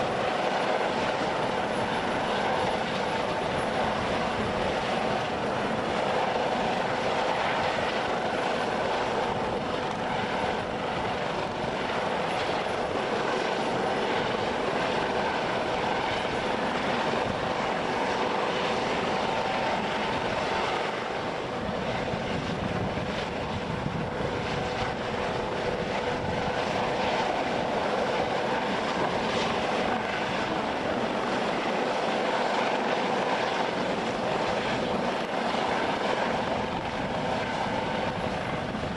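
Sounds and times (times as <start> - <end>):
helicopter running: 0.0 - 38.9.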